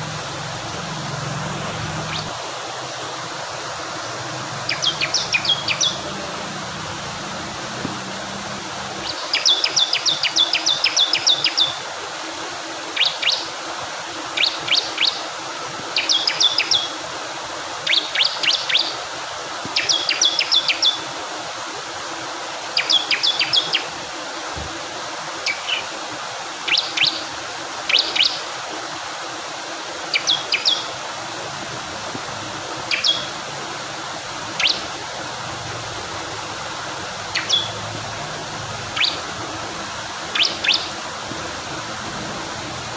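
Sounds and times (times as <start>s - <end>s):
flowing water: 0.0s - 42.9s
bird singing sharp high notes: 4.6s - 6.1s, 37.3s - 37.8s.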